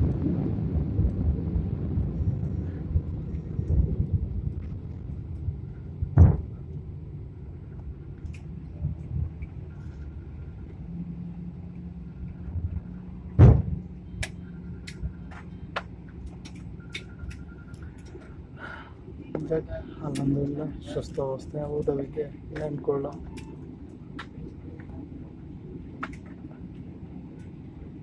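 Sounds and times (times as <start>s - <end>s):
airliner cabin rumble: 0.0s - 28.0s
heavy thuds: 6.0s - 6.6s, 13.3s - 13.8s.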